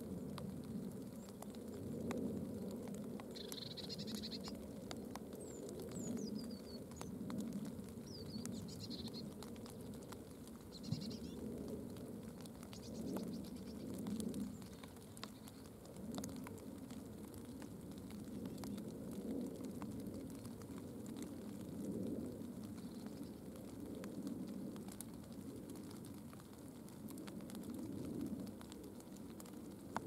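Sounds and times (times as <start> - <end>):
small birds chirping: 0.2 - 15.9, 22.6 - 23.5.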